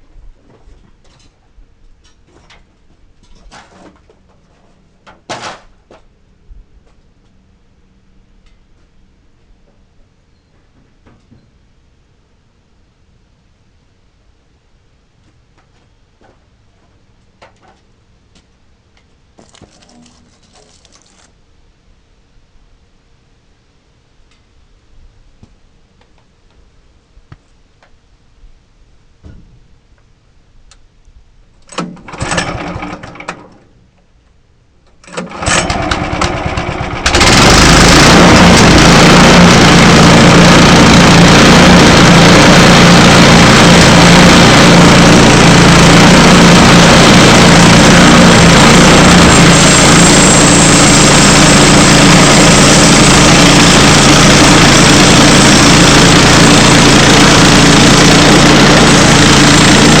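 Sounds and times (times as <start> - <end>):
small gasoline engine starting: 31.7 - 33.6, 35.0 - 60.0.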